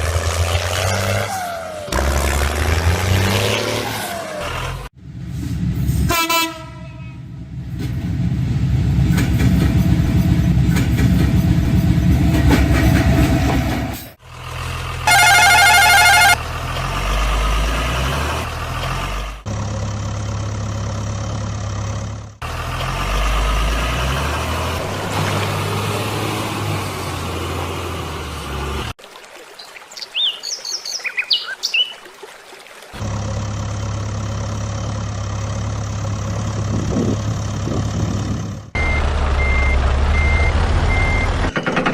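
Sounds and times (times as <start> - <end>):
warbling vehicle horn: 6.1 - 7.2, 15.0 - 16.4
low engine hum: 7.0 - 29.0, 33.0 - 41.6
low engine running: 18.8 - 28.9, 33.0 - 41.4.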